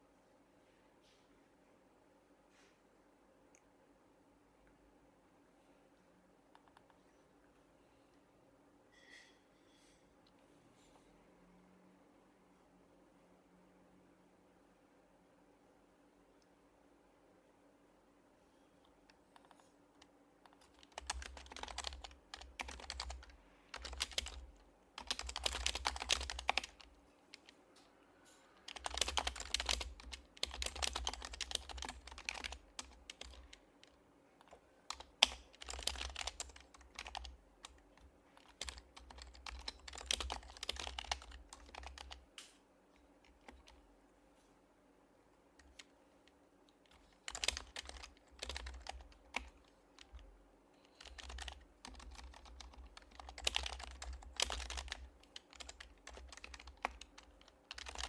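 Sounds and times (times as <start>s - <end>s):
soft muted keyboard typing: 6.4s - 7.2s, 18.8s - 44.0s, 45.4s - 58.0s
sharp keyboard click: 20.5s - 27.5s, 28.7s - 42.5s, 46.9s - 50.2s, 50.9s - 58.0s.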